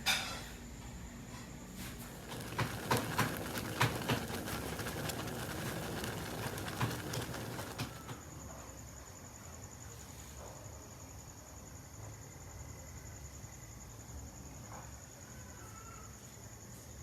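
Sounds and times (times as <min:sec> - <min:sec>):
cricket trill: 0:02.1 - 0:08.2
sharp clicks and knocks: 0:02.2 - 0:08.2.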